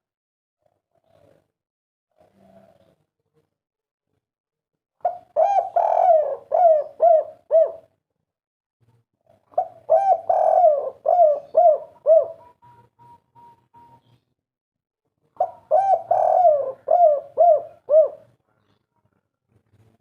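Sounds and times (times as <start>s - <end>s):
dove cooing: 5.0s - 7.9s, 9.3s - 14.2s, 15.4s - 18.4s.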